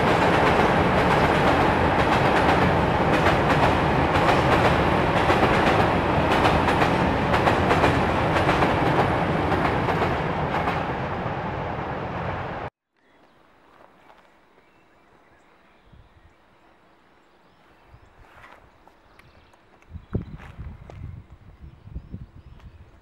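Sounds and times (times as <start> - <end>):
train wheels rumbling on rail: 0.0 - 12.7.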